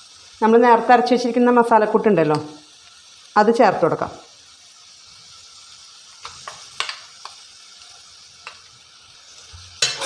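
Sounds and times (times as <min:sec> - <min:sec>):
vegetables sizzling in oil: 0:00.0 - 0:10.0
spoon knocking against pan: 0:06.2 - 0:07.4.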